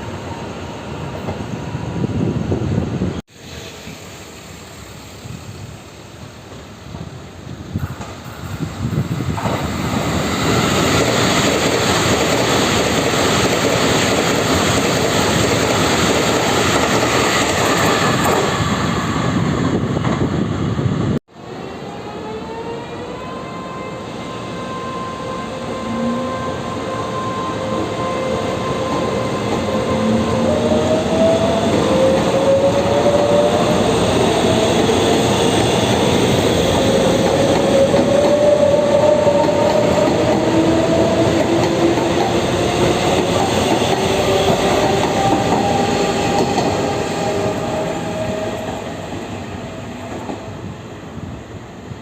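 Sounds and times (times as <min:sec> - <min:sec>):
wheels rumbling on rail: 0:22.0 - 0:51.6.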